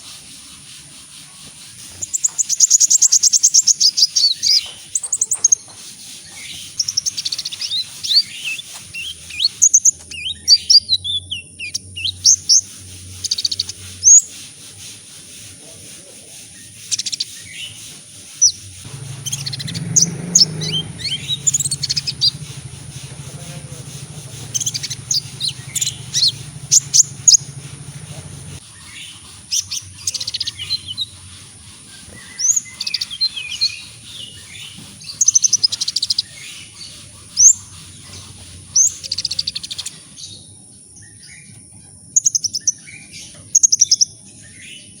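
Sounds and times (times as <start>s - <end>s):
bird chirping and twittering: 0.8s - 15.4s, 16.1s - 45.0s
low hum: 18.8s - 28.6s.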